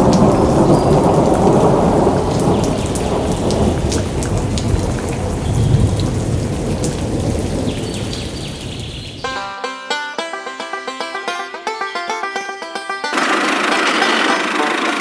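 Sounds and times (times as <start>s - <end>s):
low thunder rumble: 0.0s - 9.2s
heavy rain: 0.0s - 9.3s, 13.2s - 15.0s
plucked-string music with beat: 9.2s - 15.0s.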